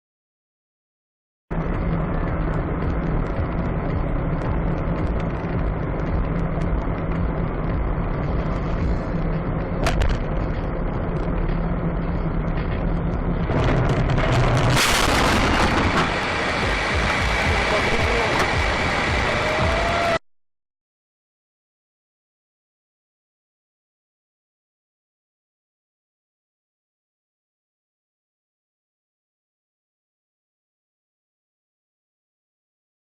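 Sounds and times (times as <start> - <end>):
car engine hum with road noise: 1.5 - 20.2
loud rushing burst: 13.4 - 20.2.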